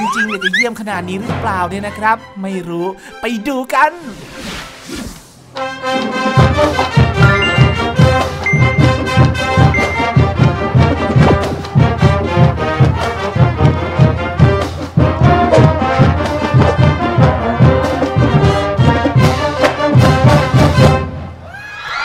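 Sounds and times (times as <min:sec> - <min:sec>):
trombones and trumpets: 0:05.6 - 0:08.4, 0:09.0 - 0:21.2
steady drum beat: 0:06.4 - 0:21.0.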